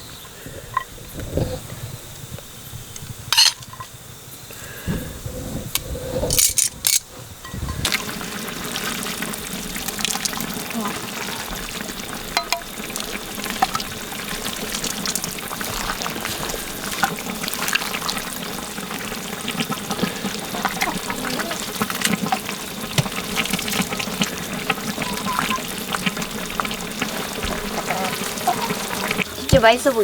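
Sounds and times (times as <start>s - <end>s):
stew bubbling and sizzling: 0.0s - 30.0s
liquid splashing and pouring: 7.7s - 29.4s.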